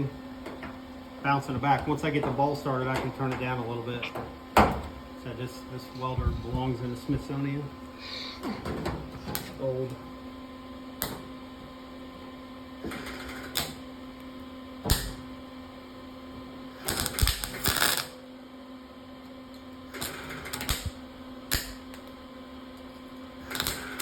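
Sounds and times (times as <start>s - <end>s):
steady low hum: 0.0s - 24.0s
welder arc crackling: 9.1s - 10.1s, 12.9s - 15.4s, 16.8s - 18.2s, 19.9s - 22.2s, 22.8s - 24.0s.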